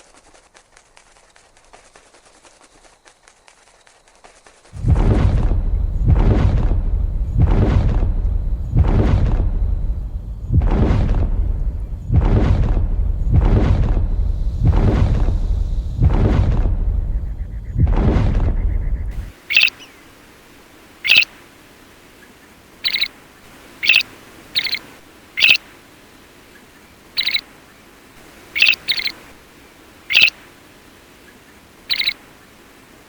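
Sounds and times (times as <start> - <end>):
loud deep sound: 4.8 - 9.7
bird high-pitched calls: 19.2 - 20.1, 21.0 - 21.4, 22.2 - 25.7, 26.4 - 29.4, 30.0 - 30.6, 31.2 - 32.6.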